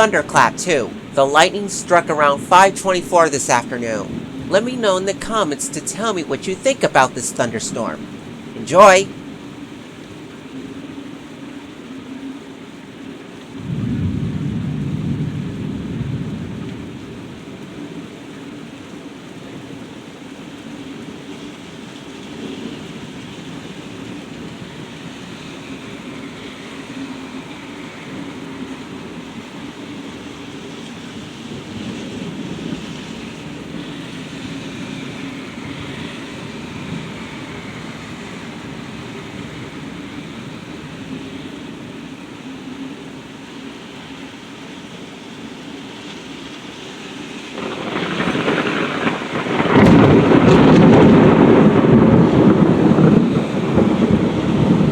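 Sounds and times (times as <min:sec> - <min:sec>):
steady rain falling: 0:00.0 - 0:54.9
thunderclap: 0:47.6 - 0:54.9.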